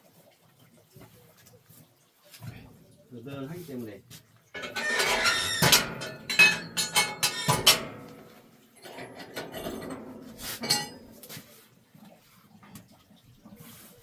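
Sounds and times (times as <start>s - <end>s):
sharp metallic clinks and knocks: 4.6s - 11.2s.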